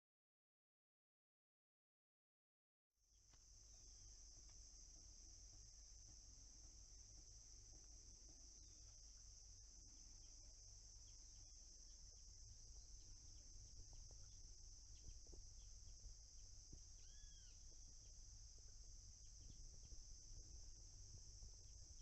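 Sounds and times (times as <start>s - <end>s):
crickets droning: 3.0s - 22.0s
birds chirping: 9.9s - 20.2s
bird arched call: 17.0s - 17.6s.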